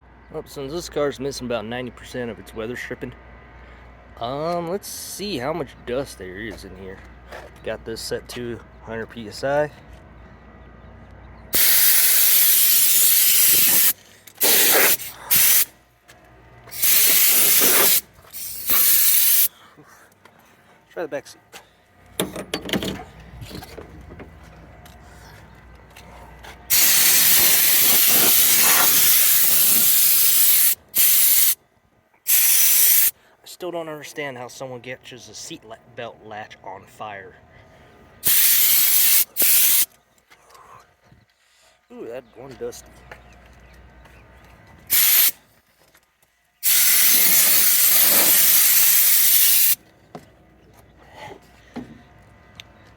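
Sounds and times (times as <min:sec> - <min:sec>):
compressed air blow gun hissing: 0:11.6 - 0:15.7, 0:16.7 - 0:19.5, 0:26.7 - 0:31.6, 0:32.3 - 0:33.1, 0:38.2 - 0:39.9, 0:44.9 - 0:45.4, 0:46.6 - 0:49.8.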